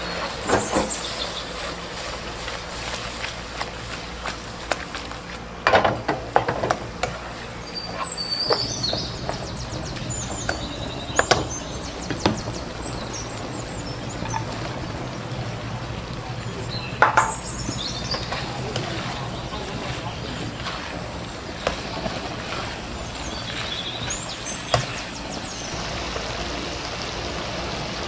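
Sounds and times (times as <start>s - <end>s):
high chirping squeaks: 7.6s - 14.6s.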